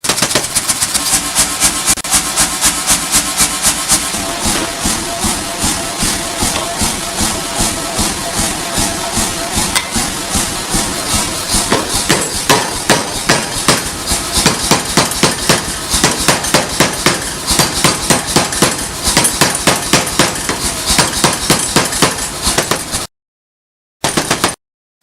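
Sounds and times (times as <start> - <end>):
hammer blows on metal: 4.0 - 23.1.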